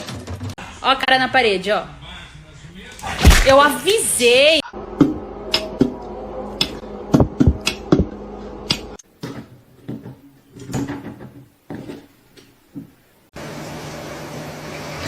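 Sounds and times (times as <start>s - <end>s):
knocks and clatters: 9.2s - 13.0s.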